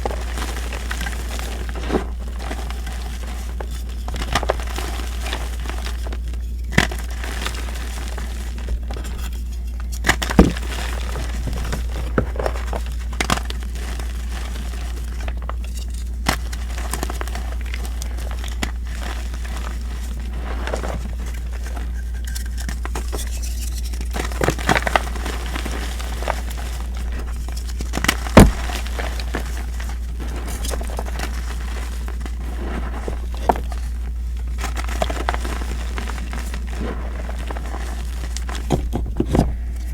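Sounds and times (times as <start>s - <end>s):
chalk crushed by hand: 0.0s - 39.9s.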